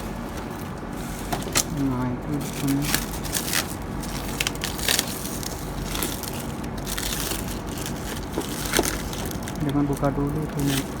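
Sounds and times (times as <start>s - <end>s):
steady low hum: 0.0s - 11.0s
handling crackles and clicks: 2.6s - 11.0s.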